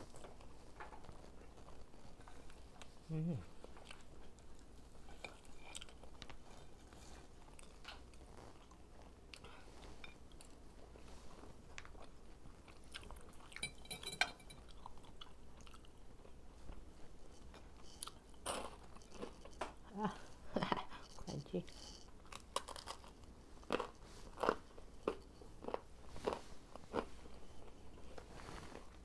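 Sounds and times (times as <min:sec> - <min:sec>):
chewing fried chicken: 0:00.0 - 0:13.6, 0:14.6 - 0:28.2.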